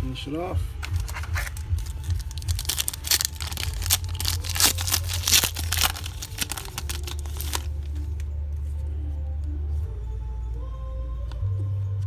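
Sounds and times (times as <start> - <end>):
foil wrapper tearing and crinkling: 0.8 - 7.9.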